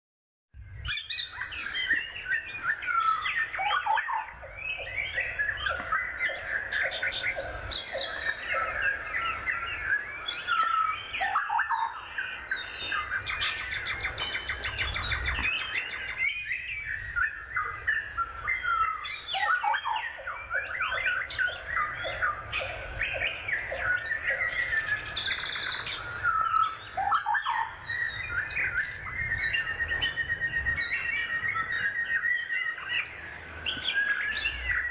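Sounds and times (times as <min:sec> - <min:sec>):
birds chirping and singing: 0:00.6 - 0:34.9.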